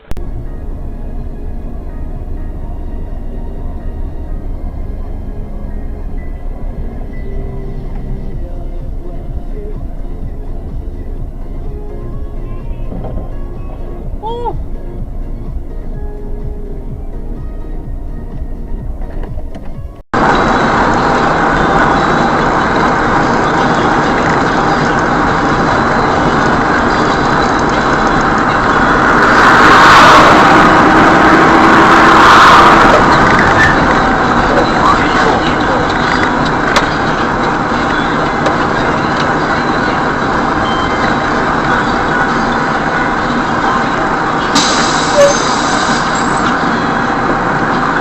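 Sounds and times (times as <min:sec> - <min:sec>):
car engine and road noise: 0:00.0 - 0:48.0
music: 0:00.1 - 0:20.0.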